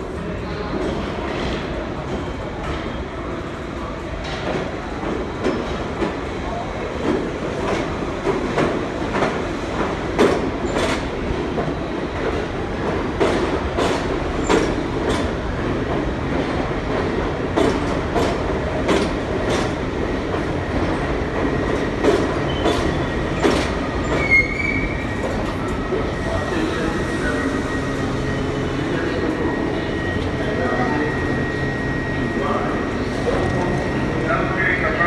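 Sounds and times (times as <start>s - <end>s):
subway train rumbling: 0.0s - 35.0s
high wheel squeal: 24.0s - 28.5s.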